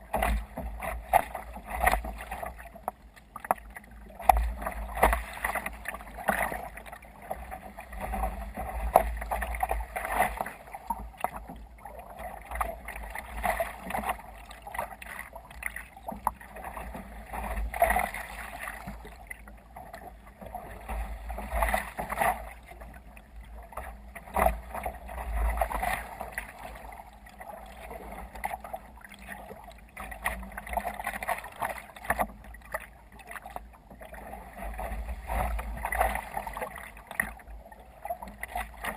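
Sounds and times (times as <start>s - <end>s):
water splashing against hull: 0.0s - 38.9s.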